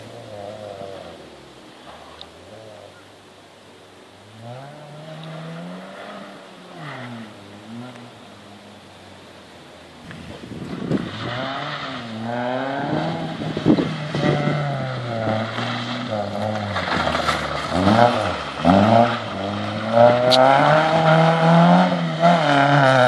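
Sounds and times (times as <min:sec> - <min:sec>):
rally car engine revving hard: 0:04.3 - 0:08.6, 0:10.1 - 0:23.0.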